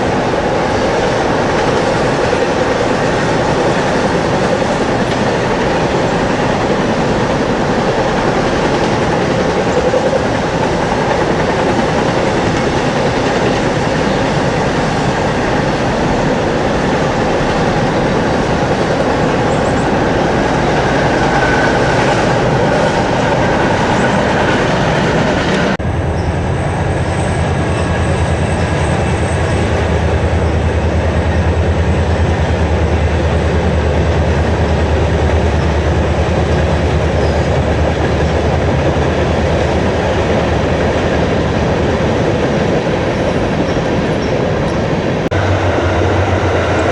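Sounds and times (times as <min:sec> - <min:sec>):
train wheels rolling on rails: 0:00.0 - 0:46.9.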